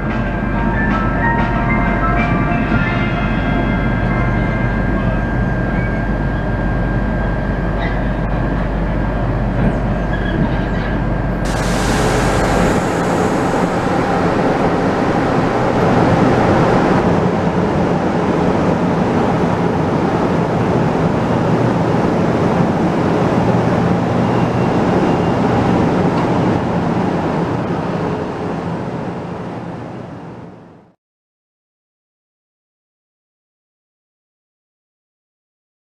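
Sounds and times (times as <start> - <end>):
electric train rumble: 0.0 - 31.0
hissy train noise at platform: 0.0 - 31.0
low hum inside carriage: 0.0 - 31.0.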